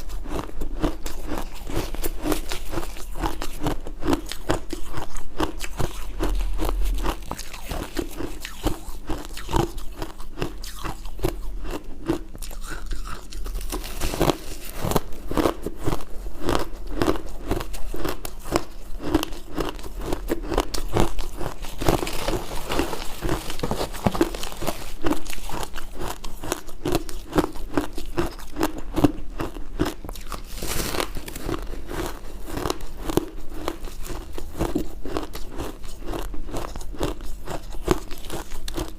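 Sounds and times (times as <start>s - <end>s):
ice crunching while chewed: 0.0s - 38.9s.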